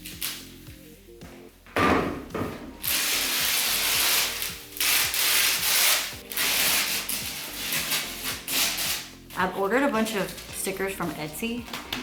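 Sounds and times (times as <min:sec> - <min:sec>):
faint background music: 0:00.0 - 0:12.0
rubbing scraping strokes: 0:02.8 - 0:09.6.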